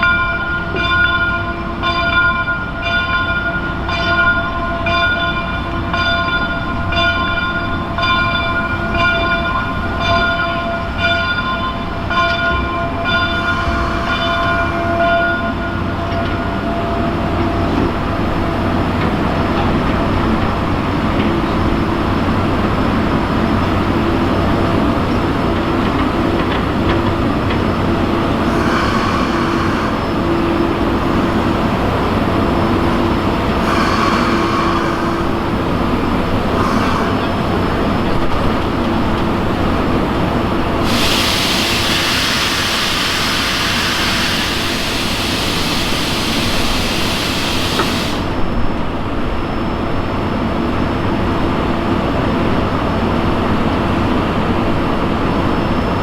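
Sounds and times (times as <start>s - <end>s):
steam train rumbling on rails: 0.0s - 56.0s
loud steam hiss: 12.9s - 16.0s, 17.1s - 48.9s.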